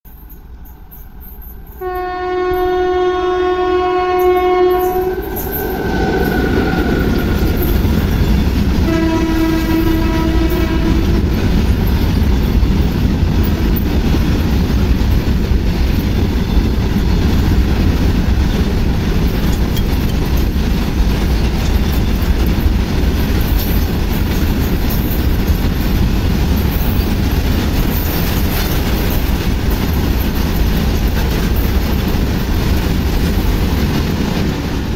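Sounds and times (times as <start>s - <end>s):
train wheels rolling on rails: 0.1s - 34.9s
train horn blasts: 1.7s - 11.5s.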